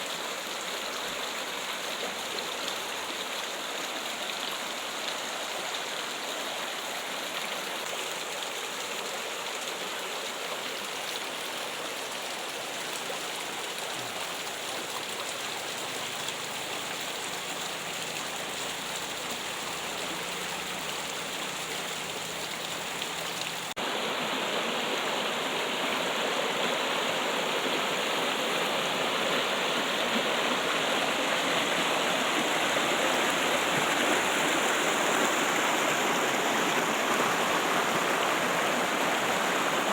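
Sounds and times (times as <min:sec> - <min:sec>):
trickling running water: 0:13.9 - 0:23.8.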